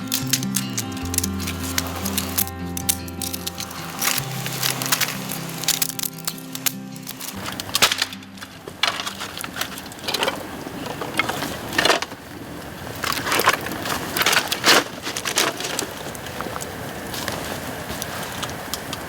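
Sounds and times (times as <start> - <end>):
bamboo fire crackling and popping: 0.0 - 19.0.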